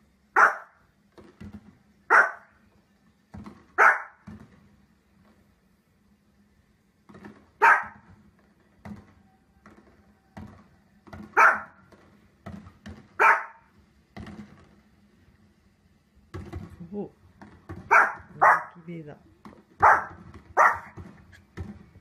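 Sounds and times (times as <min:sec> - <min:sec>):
dog barking: 0:00.4 - 0:00.8, 0:02.1 - 0:02.5, 0:03.8 - 0:04.2, 0:07.6 - 0:08.0, 0:11.4 - 0:11.8, 0:13.2 - 0:13.7, 0:17.9 - 0:18.8, 0:19.8 - 0:21.0.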